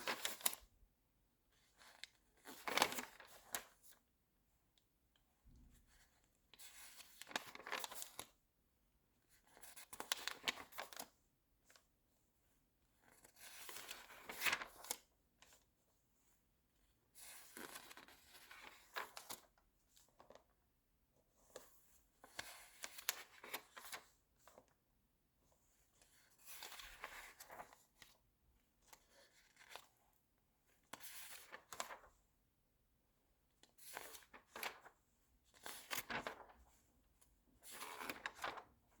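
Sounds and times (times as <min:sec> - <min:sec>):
magazine pages turning: 0:01.8 - 0:03.7, 0:06.9 - 0:08.3, 0:13.3 - 0:15.0, 0:31.0 - 0:32.1, 0:33.7 - 0:34.9, 0:35.5 - 0:36.8, 0:37.6 - 0:38.7.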